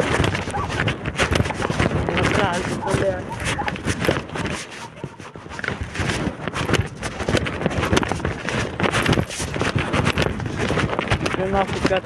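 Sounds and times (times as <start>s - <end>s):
footsteps: 0.0s - 12.0s
wind buffeting microphone: 0.0s - 12.0s.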